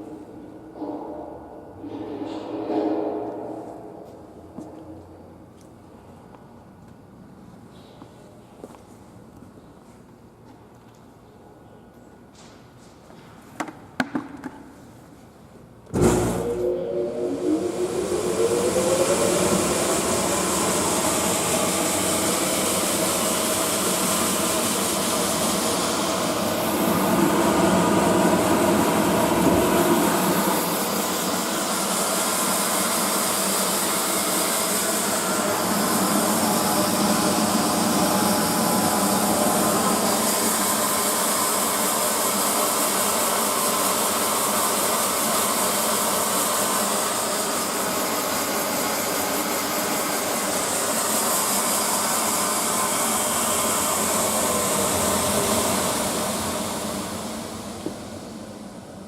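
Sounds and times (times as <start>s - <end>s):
airy rush: 16.0s - 32.5s.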